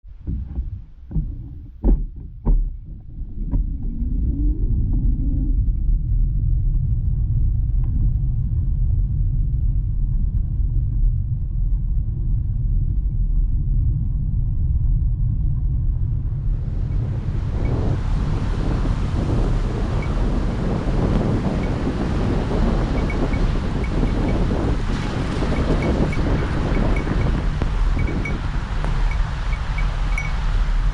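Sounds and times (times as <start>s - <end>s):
low rumble: 0.0s - 30.9s
bike knocks and rattles: 0.2s - 3.8s.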